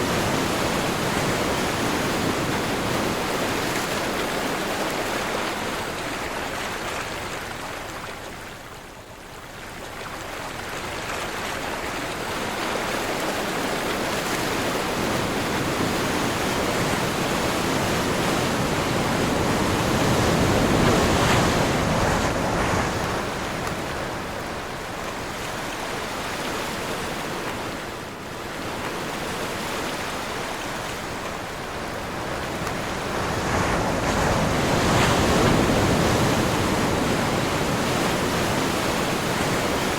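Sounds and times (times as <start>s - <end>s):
ocean surf breaking: 0.0s - 6.0s, 12.8s - 39.9s
wind blowing across microphone: 12.2s - 39.9s.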